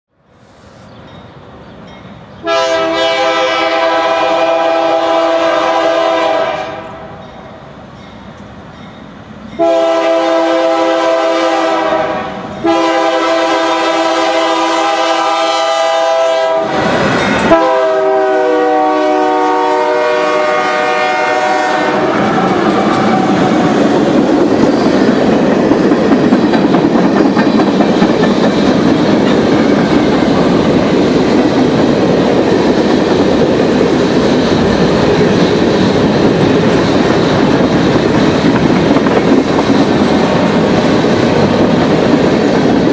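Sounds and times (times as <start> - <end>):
locomotive air horn blasts: 2.4 - 7.2, 9.6 - 23.3
train wheel noise: 7.2 - 42.9.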